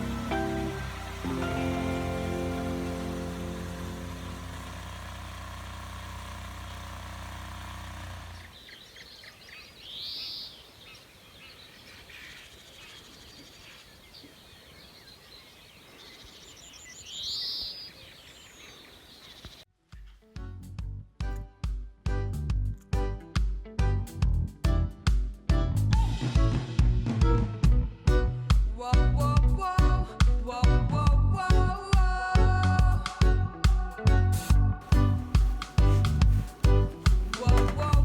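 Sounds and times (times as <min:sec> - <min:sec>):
steady droning hum: 0:00.0 - 0:08.6, 0:34.7 - 0:38.0.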